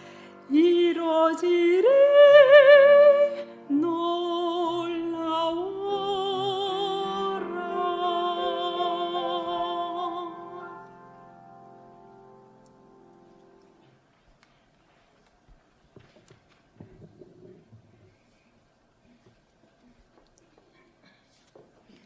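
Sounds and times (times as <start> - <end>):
person singing with vibrato: 0.0 - 11.0.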